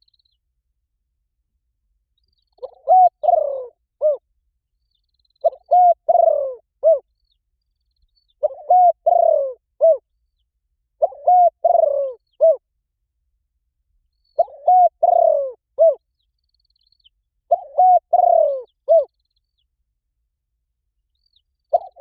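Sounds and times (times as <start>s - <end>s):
dove cooing: 2.6s - 4.2s, 5.4s - 7.0s, 8.4s - 10.0s, 11.0s - 12.6s, 14.4s - 16.0s, 17.5s - 19.1s, 21.7s - 22.0s.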